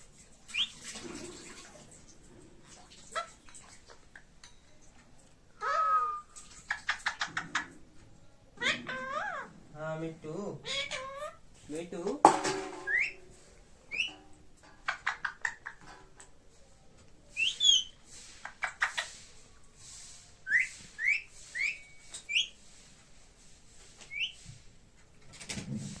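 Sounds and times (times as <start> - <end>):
parrot rising whistles: 5.6 - 6.3, 20.4 - 22.6.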